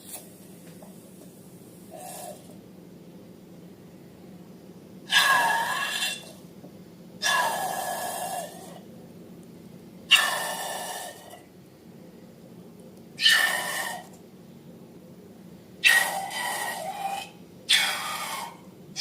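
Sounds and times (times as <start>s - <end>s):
air squealing out of balloon: 13.2s - 14.1s.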